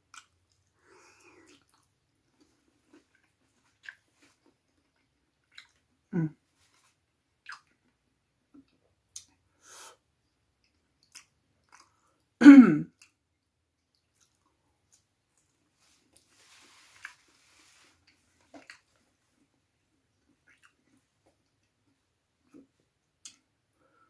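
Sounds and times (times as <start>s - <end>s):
mouth clicks and chewing: 0.0s - 5.9s, 7.4s - 9.4s, 10.6s - 12.3s, 13.0s - 16.3s, 18.0s - 19.5s, 20.1s - 23.5s
throat or voice sound: 12.4s - 13.0s.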